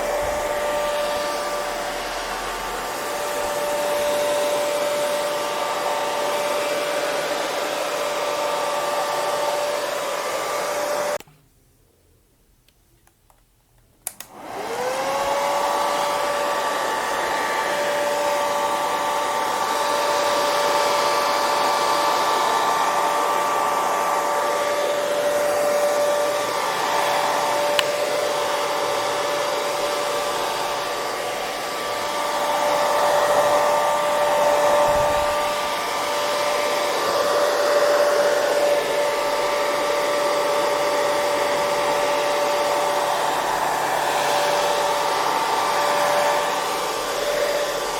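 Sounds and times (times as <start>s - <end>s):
hair dryer motor whirring: 0.0s - 11.2s, 14.0s - 47.9s
hair dryer switch click: 12.7s - 14.5s, 27.6s - 28.1s.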